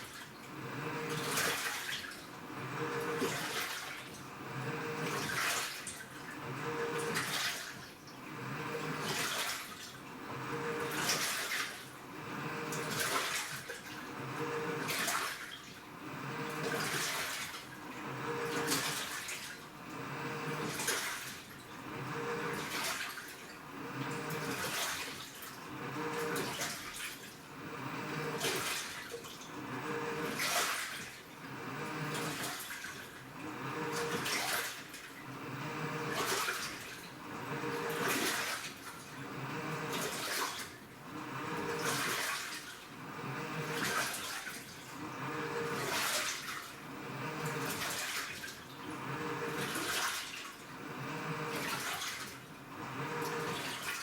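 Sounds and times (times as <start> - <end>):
washing machine water sloshing: 0.0 - 4.4, 5.0 - 8.3, 9.0 - 12.1, 12.7 - 14.1, 14.8 - 21.8, 22.4 - 27.5, 28.3 - 35.4, 36.0 - 41.0, 41.6 - 43.0, 43.6 - 50.8, 51.4 - 54.0.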